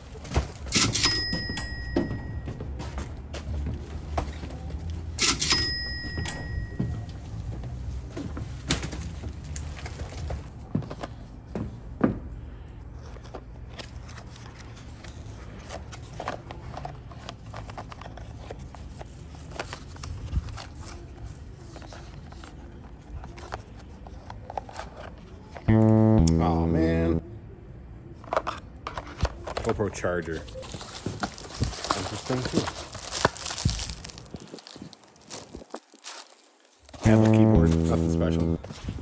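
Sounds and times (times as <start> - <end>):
cardboard boxes handled: 30.5 - 37.8.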